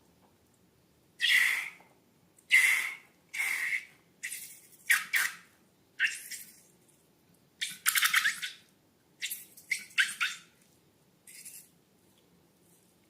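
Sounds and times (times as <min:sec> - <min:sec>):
short sharp squishing noises: 0:02.4 - 0:06.8.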